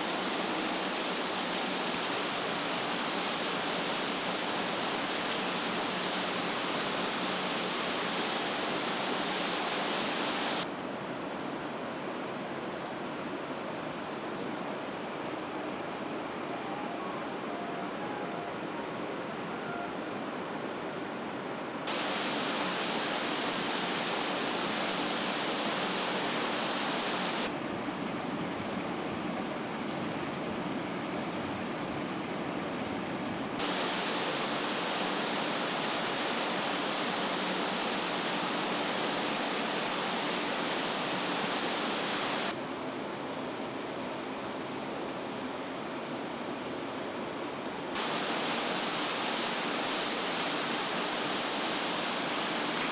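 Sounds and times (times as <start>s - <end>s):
factory floor hiss: 0.0s - 10.7s, 21.9s - 27.5s, 33.6s - 42.6s, 48.0s - 52.9s.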